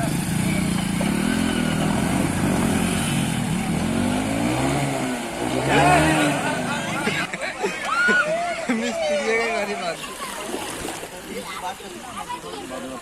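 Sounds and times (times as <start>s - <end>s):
engine running and revving: 0.0s - 7.3s.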